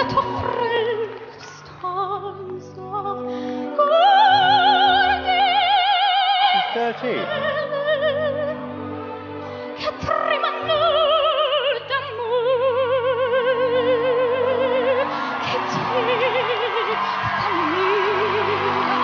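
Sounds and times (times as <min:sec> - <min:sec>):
sustained backing music: 0:00.0 - 0:19.0
girl singing with vibrato: 0:09.8 - 0:19.0.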